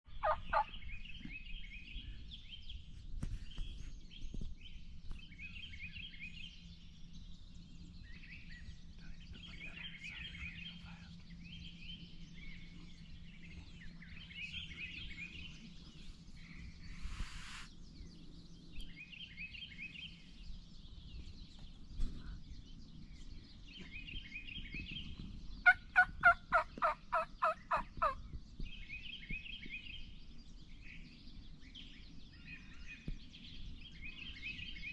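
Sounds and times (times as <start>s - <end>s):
turkey yelps: 0.2s - 0.7s, 25.7s - 28.2s
turkeys gobbling: 0.2s - 0.7s, 25.6s - 28.2s.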